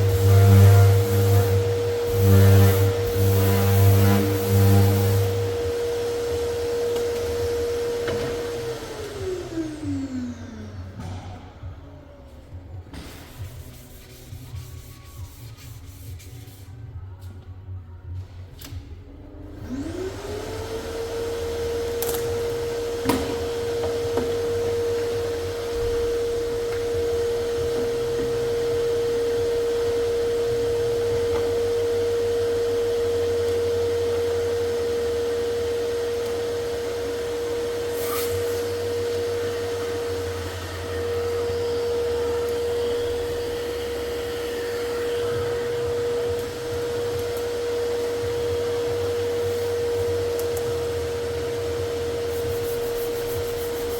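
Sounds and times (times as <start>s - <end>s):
electric tool motor running: 0.0s - 10.8s.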